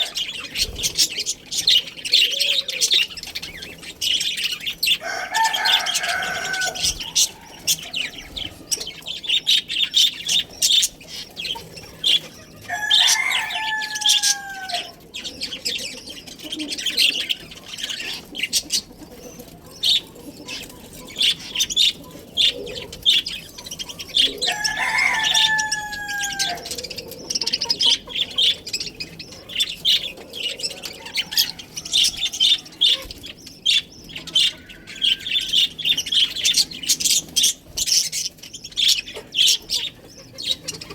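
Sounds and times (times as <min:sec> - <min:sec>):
rooster crowing: 0:00.0 - 0:00.5, 0:04.8 - 0:08.9, 0:12.5 - 0:15.0, 0:24.1 - 0:27.1, 0:30.3 - 0:33.0, 0:34.1 - 0:35.8
budgerigars chattering and chirping: 0:00.0 - 0:40.9.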